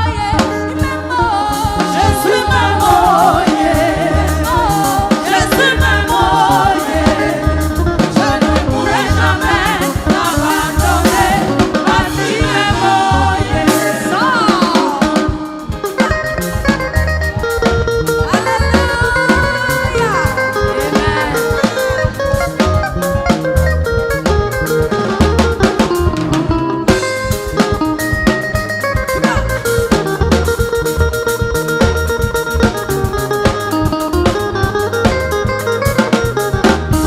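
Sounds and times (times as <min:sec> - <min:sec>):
gospel singing: 0:00.0 - 0:15.9, 0:18.1 - 0:23.1
drum kit bass and guitar: 0:00.0 - 0:37.0.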